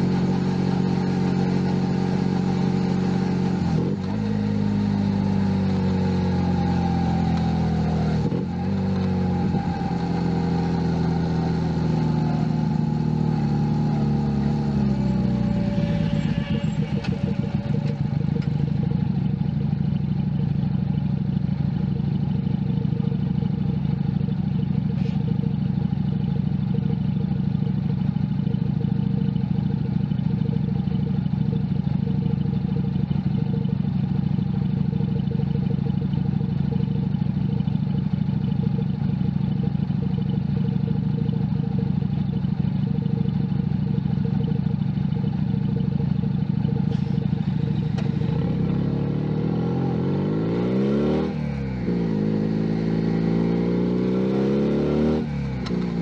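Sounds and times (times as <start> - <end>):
single-cylinder engine running: 0.0 - 56.0.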